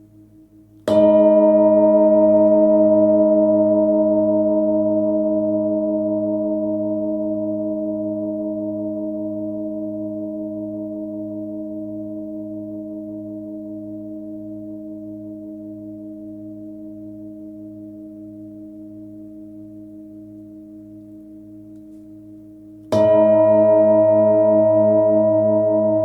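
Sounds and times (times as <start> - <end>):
singing bowl struck: 0.8 - 4.4, 22.9 - 26.0
singing bowl ringing: 0.9 - 5.2, 22.9 - 26.0.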